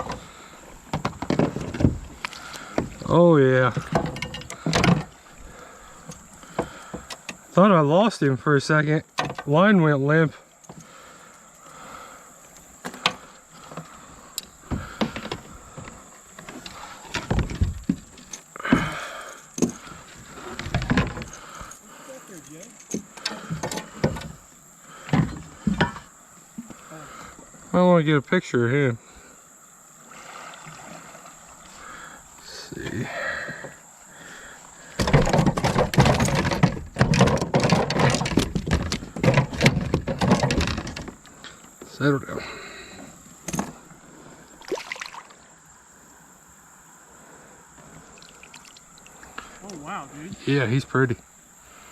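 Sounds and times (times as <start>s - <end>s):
fish thumping in a kayak: 14.6s - 21.7s, 34.9s - 41.2s.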